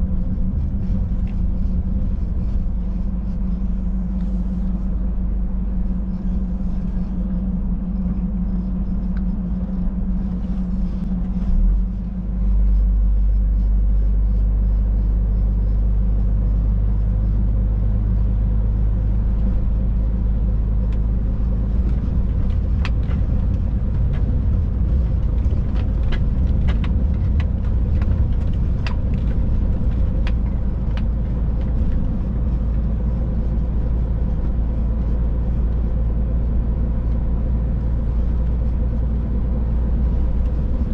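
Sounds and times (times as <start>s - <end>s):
road noise: 0.0s - 40.9s
truck engine drone: 0.0s - 40.9s.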